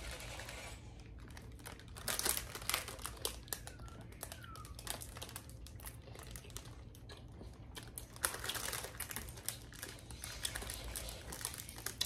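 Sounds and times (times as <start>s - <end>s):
chewing soft cake: 0.1s - 12.0s
paper wrapper rustling: 1.2s - 5.8s, 8.2s - 12.0s.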